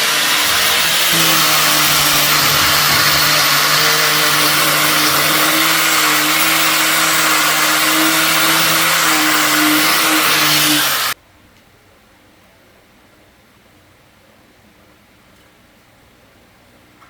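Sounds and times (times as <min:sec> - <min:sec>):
power tool rasping on metal: 0:00.0 - 0:11.2.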